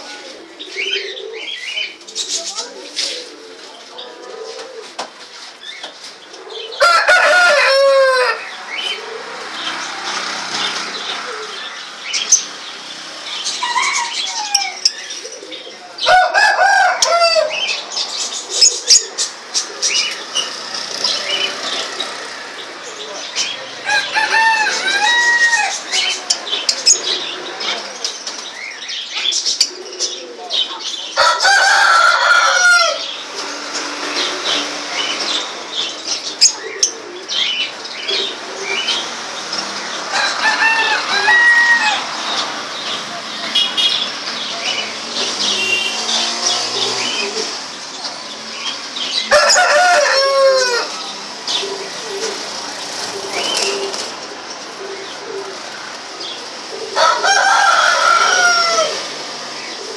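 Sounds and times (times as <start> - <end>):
rooster crowing: 6.8 - 8.6, 16.0 - 17.7, 23.8 - 26.1, 31.2 - 33.1, 40.1 - 42.1, 49.3 - 51.0, 56.8 - 59.1
small birds chirping: 8.4 - 16.2, 17.0 - 24.1, 41.9 - 50.1, 50.8 - 59.9.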